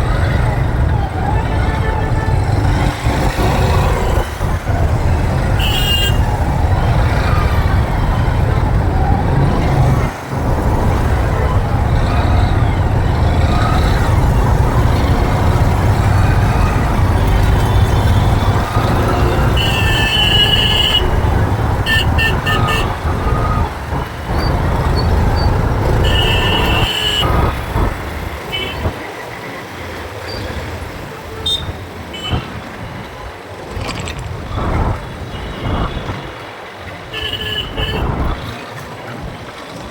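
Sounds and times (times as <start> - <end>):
traffic rumble: 0.0 - 39.9
vehicle horns honking: 1.3 - 7.3, 17.2 - 23.6, 24.4 - 29.0, 31.2 - 32.6, 37.1 - 38.5.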